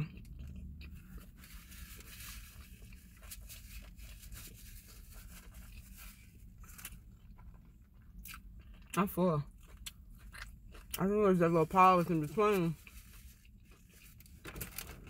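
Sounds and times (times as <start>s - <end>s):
chewing and mouth clicks: 0.0s - 1.4s, 7.1s - 11.0s
paper and foil wrapper rustling: 1.0s - 7.0s, 11.6s - 15.0s.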